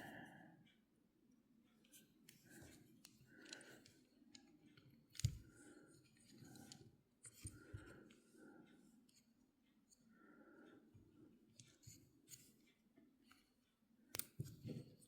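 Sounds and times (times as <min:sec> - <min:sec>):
small metallic clicks of pliers: 0:03.0 - 0:05.5, 0:14.1 - 0:14.5.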